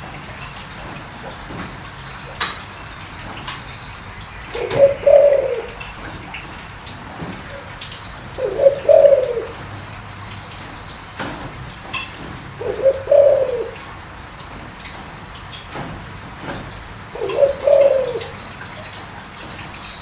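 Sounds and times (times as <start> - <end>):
dove cooing: 4.3 - 9.9, 12.3 - 14.0, 17.1 - 18.7.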